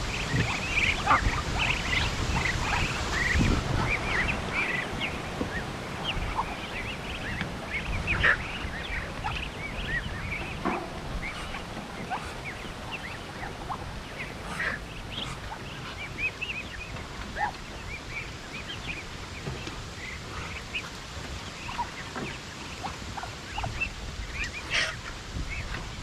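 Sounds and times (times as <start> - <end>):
poultry peeping and chirping: 0.0 - 26.0.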